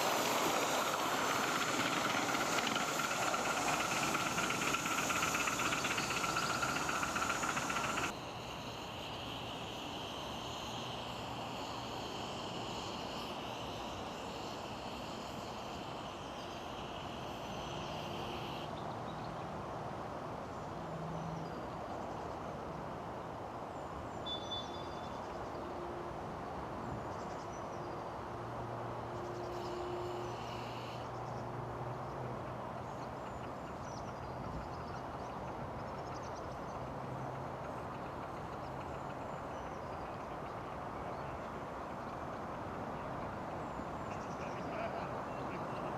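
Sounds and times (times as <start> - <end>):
miniature steam train rumbling: 0.0 - 8.2, 32.4 - 45.9
high steady hiss: 0.0 - 18.8.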